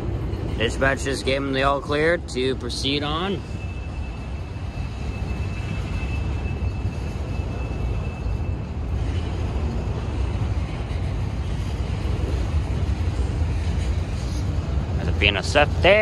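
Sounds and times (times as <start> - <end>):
freight cars rumbling on rails: 0.0 - 16.0
faint high squeal: 3.1 - 9.4.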